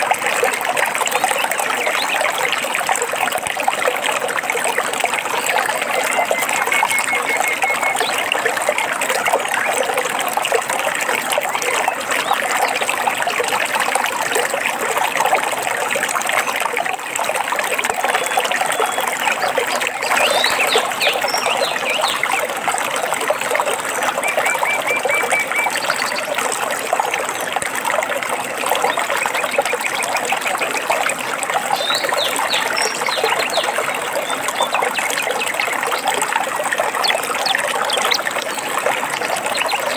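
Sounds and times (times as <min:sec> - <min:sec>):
stream water trickling: 0:00.0 - 0:39.9
songbirds trilling and chirping: 0:05.2 - 0:10.0, 0:18.2 - 0:22.6, 0:23.8 - 0:26.5, 0:31.7 - 0:36.1.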